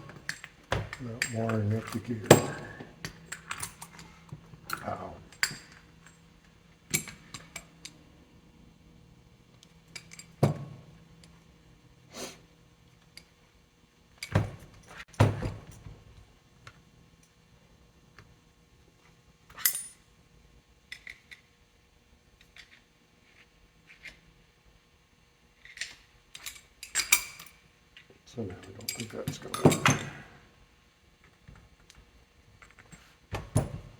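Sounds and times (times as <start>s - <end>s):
metal tools clanking on workbench: 0.0s - 4.0s, 28.6s - 30.3s.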